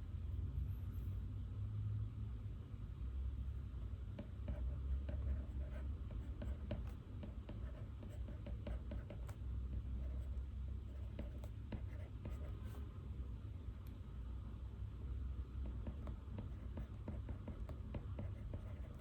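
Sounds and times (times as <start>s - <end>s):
low room hum: 0.0s - 19.0s
pen scratching on paper: 4.2s - 12.8s, 15.6s - 19.0s
pen taps: 15.6s - 19.0s.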